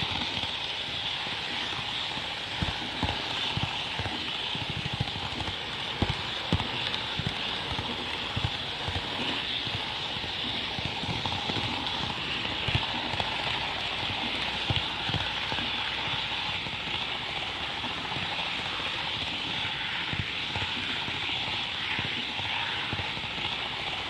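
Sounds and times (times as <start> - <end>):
model train rolling hiss: 0.0 - 24.0
wheels clicking on rails: 0.0 - 24.0.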